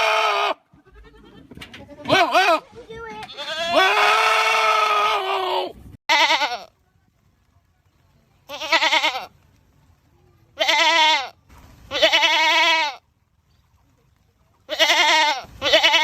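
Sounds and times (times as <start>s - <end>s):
goat screaming: 0.0s - 1.5s, 3.2s - 6.7s, 14.7s - 16.0s.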